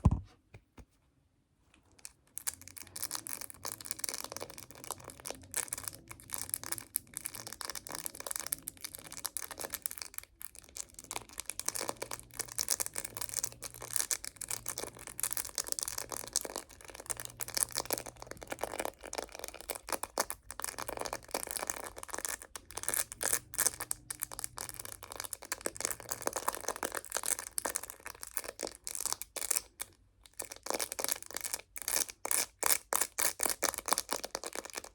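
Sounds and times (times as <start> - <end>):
tapping on a phone case: 0.0 - 0.9.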